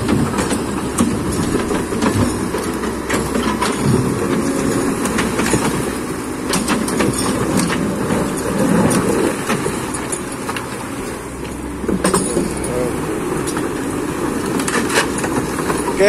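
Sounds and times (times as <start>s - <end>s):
excavator diesel engine rumble: 0.0s - 16.0s
metallic clanks and knocks: 0.0s - 16.0s.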